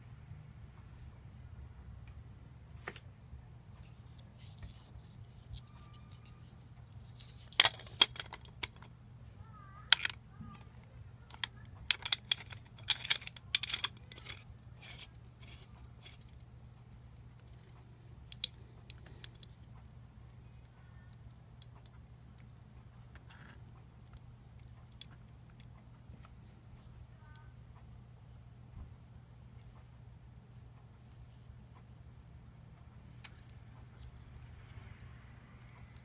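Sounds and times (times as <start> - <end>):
low steady hum: 0.0 - 36.0
clicks of small hard parts: 7.1 - 8.9, 9.9 - 10.6, 11.3 - 16.4.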